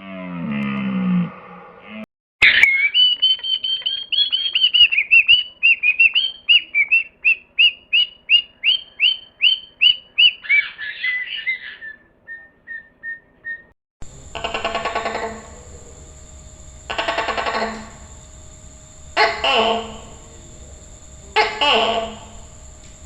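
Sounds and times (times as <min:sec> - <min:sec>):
bird singing whistled notes: 0:02.4 - 0:13.7.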